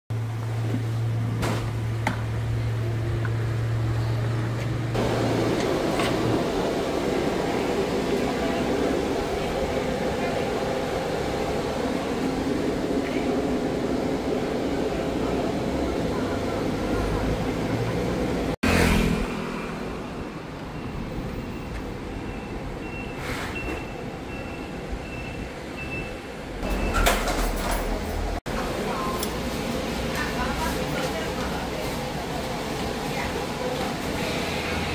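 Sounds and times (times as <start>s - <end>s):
traffic-like rumble: 0.1s - 34.9s.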